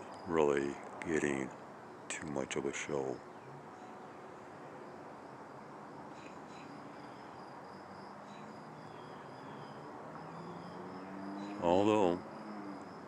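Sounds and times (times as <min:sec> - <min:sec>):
crickets trilling: 0:00.0 - 0:13.0
faint chirps: 0:06.0 - 0:13.0.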